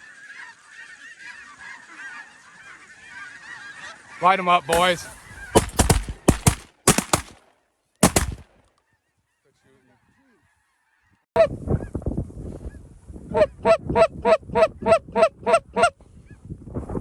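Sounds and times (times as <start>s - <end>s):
shotgun shots: 4.7s - 7.4s, 8.0s - 8.5s.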